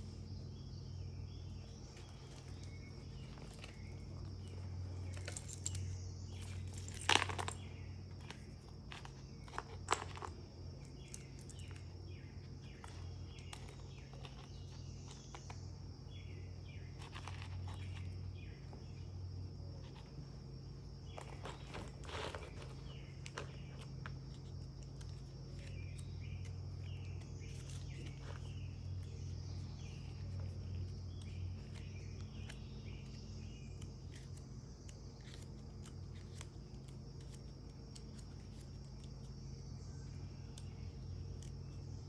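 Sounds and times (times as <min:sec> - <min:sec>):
steady low hum: 0:00.0 - 0:42.0
paper pages rustling: 0:21.1 - 0:26.0.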